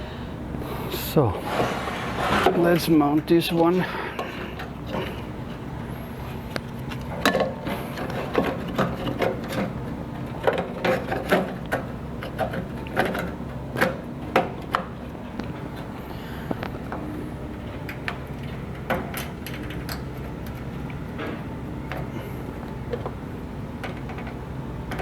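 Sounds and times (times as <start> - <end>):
steady low hum: 0.0 - 25.0
hand tools clicking and scraping: 1.4 - 2.9, 6.6 - 14.9.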